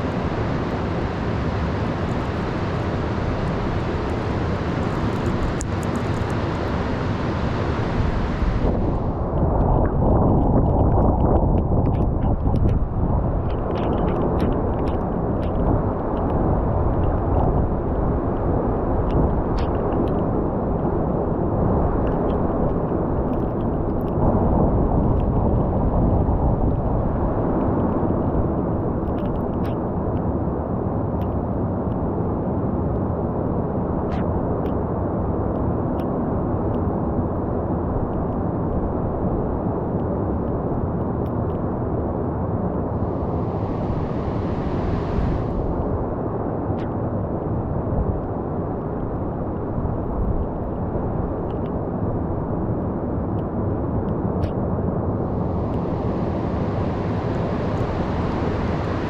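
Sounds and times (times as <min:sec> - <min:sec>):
storm surf waves breaking: 0:00.0 - 0:20.1, 0:42.8 - 0:46.4, 0:54.9 - 0:59.0.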